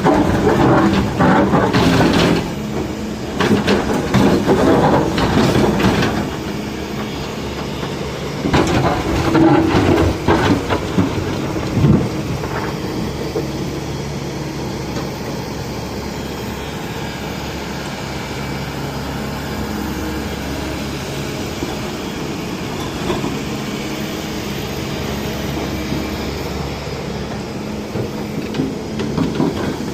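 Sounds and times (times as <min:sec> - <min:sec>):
metal clanking and knocking: 0:00.0 - 0:13.5, 0:27.9 - 0:29.9
excavator diesel engine running: 0:00.0 - 0:29.9.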